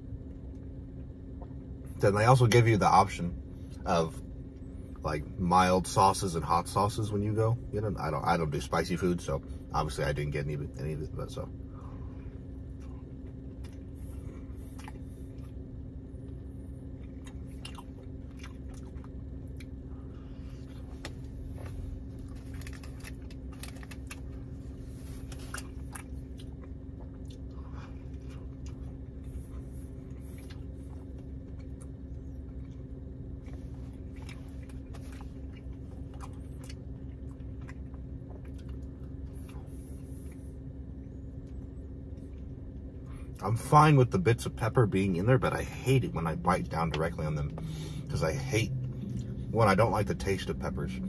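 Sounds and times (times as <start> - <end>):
low hum inside car: 0.0 - 51.0
chewing burrito: 11.5 - 43.7.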